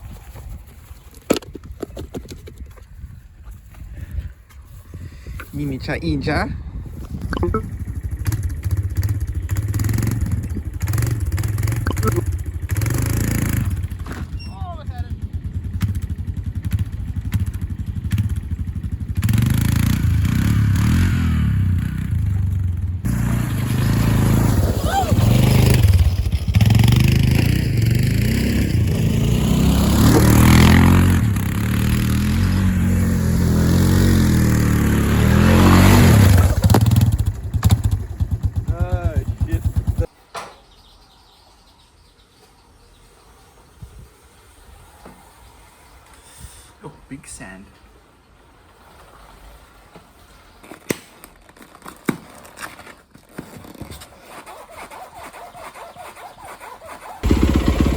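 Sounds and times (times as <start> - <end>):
dirt bike engine running: 6.2 - 40.1, 57.2 - 57.9
bike clattering over rough ground: 7.8 - 20.4.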